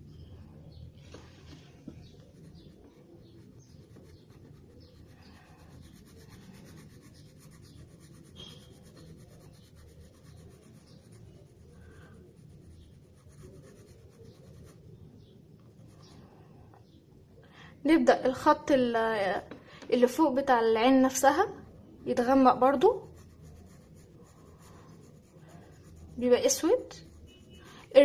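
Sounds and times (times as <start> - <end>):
pencil scratching on paper: 1.5 - 16.3, 21.3 - 28.0.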